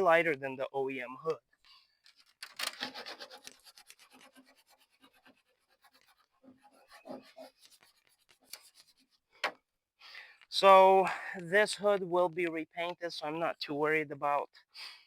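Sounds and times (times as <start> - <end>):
dry rasping scrape on hard surface: 2.8 - 9.2.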